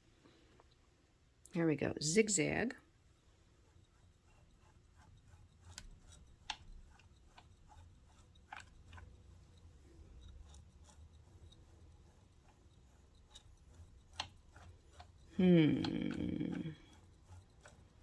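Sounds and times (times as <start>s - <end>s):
light mechanical ticks and clicks: 3.5s - 18.0s
sewing machine motor hum: 3.6s - 18.0s.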